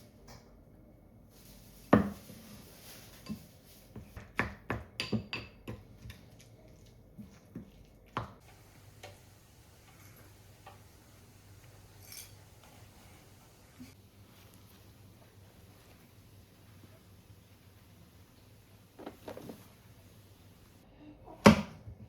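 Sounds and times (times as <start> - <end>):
kitchenware clicking and clinking: 8.4 - 13.0.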